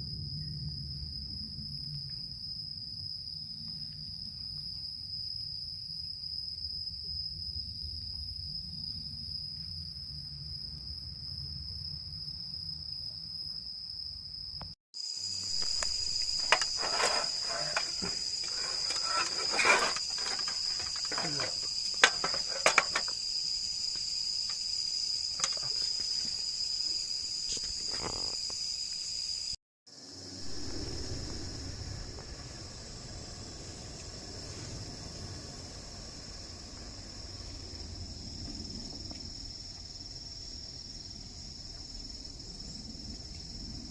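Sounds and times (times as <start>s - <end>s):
insects trilling: 0.0s - 43.9s
sharp clicks and knocks: 18.8s - 23.2s.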